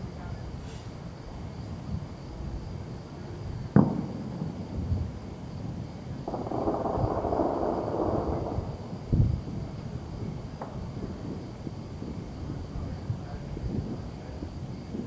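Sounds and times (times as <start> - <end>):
hiss: 0.6 - 1.0
distant fireworks booming: 3.7 - 15.0.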